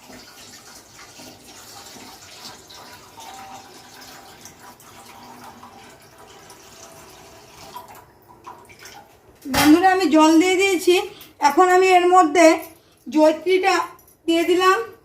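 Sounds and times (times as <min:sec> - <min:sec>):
water pouring into a pot: 0:00.0 - 0:09.1.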